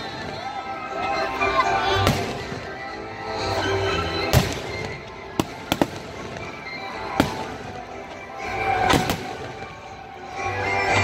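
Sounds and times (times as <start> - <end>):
music: 0.0 - 11.0
firework bangs: 1.9 - 2.8, 4.2 - 9.9.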